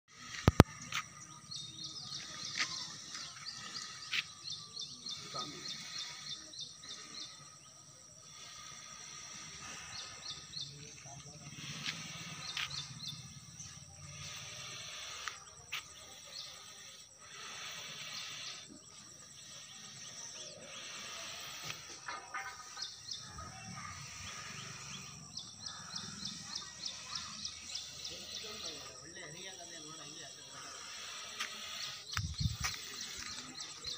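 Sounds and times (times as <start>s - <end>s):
small birds chirping: 0.1s - 33.9s
steady high-pitched hiss: 0.1s - 33.9s.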